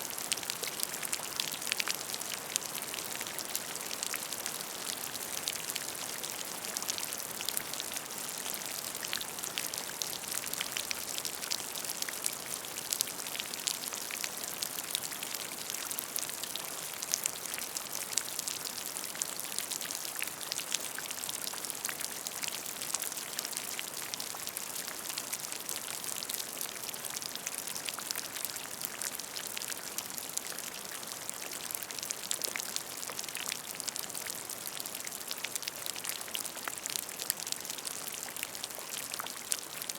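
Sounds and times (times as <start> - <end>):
rain falling on a puddle: 0.0 - 39.9.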